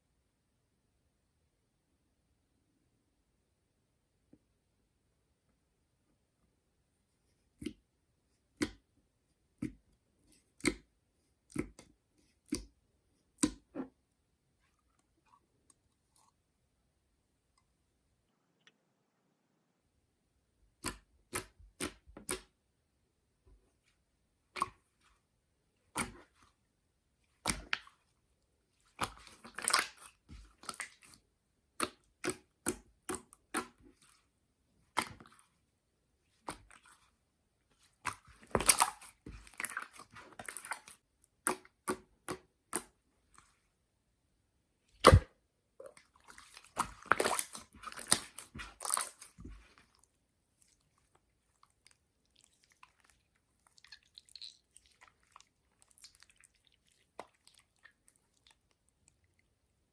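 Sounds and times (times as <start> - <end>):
slime squeezed with sticky pops: 38.1 - 42.9, 45.0 - 45.3.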